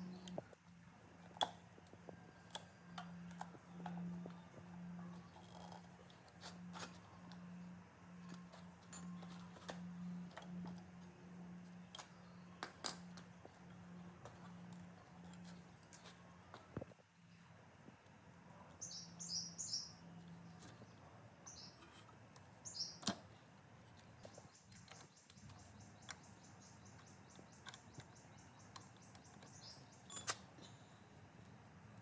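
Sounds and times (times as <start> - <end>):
small bird chirping and trilling: 18.8 - 20.0, 21.5 - 21.9, 22.6 - 23.0.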